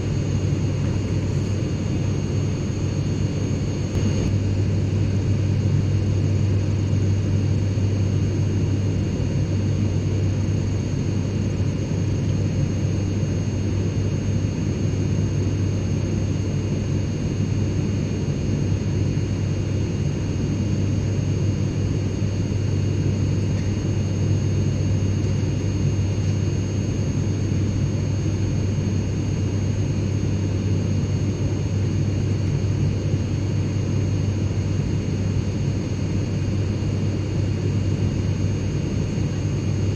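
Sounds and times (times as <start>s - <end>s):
airplane cabin rumble: 0.0s - 14.8s
faint high whine: 0.0s - 16.1s.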